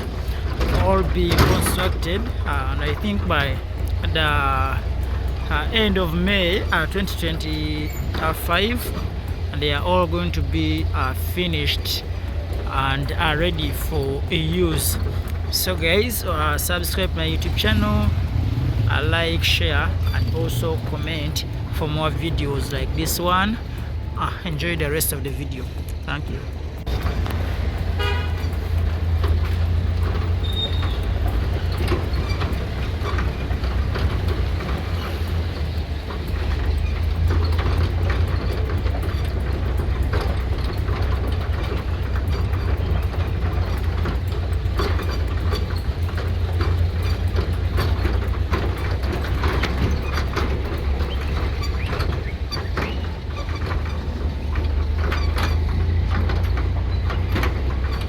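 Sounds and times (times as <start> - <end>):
clicks and rattles: 0.0 - 58.0
vehicle low rumble: 0.0 - 58.0.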